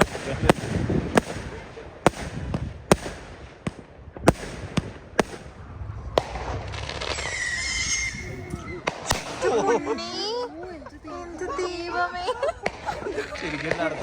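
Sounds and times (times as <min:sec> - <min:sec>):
fireworks bangs: 0:00.0 - 0:11.0, 0:11.6 - 0:14.0.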